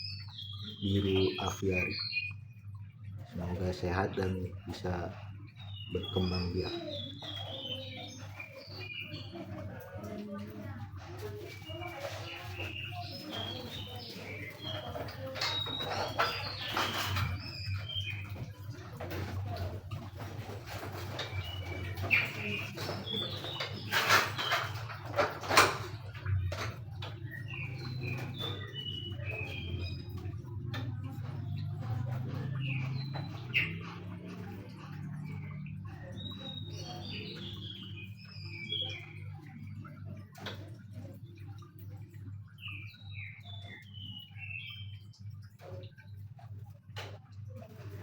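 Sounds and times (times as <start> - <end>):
birds whistling: 0.0 - 2.7, 3.4 - 9.9, 11.2 - 40.4
rustling and handling noises: 6.3 - 35.0.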